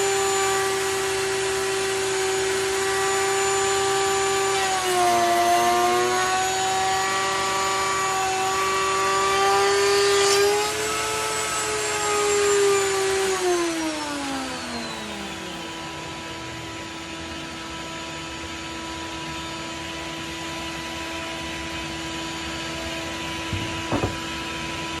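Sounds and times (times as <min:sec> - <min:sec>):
power tool motor whining: 0:00.0 - 0:16.6, 0:22.9 - 0:24.3.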